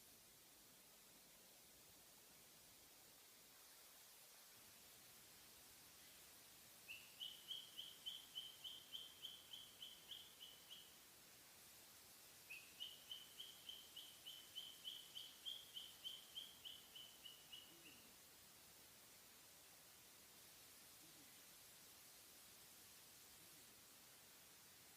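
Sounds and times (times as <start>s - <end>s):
cockatiel chirping: 6.9s - 10.9s, 12.5s - 18.0s.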